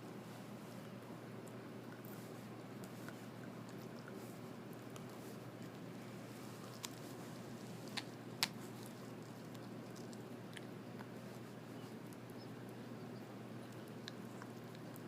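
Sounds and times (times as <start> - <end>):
steady low hum: 0.0 - 15.0
dog chewing bone crunches: 1.9 - 12.3.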